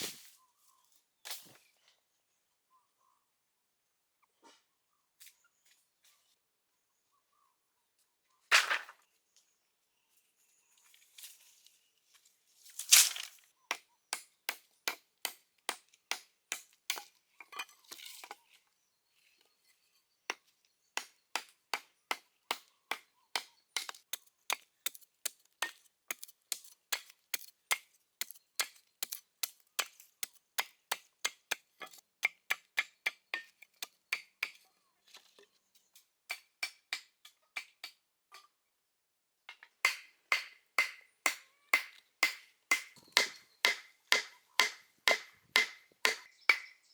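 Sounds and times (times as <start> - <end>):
chopping strikes on wood: 39.8 - 46.8.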